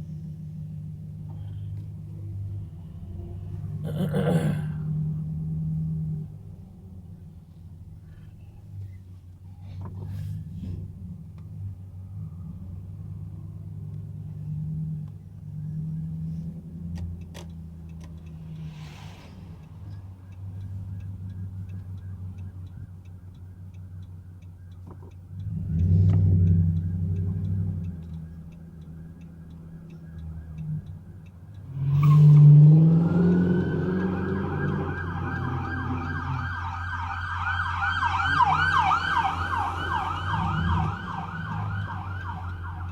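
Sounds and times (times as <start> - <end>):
car engine and road noise: 0.0 - 42.9
police siren wailing: 20.8 - 42.9.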